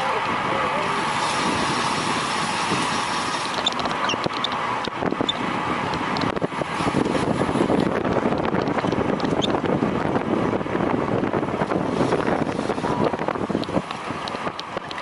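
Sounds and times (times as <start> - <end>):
wind buffeting a microphone: 0.0 - 15.0.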